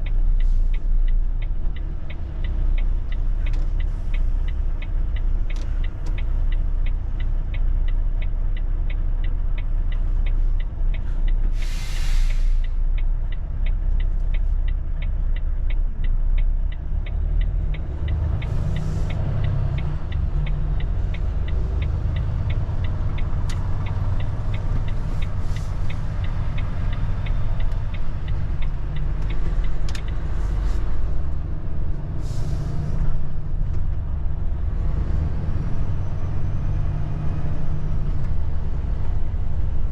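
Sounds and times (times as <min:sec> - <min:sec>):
diesel engine rumbling: 0:00.0 - 0:39.9
air hisses: 0:11.6 - 0:12.6.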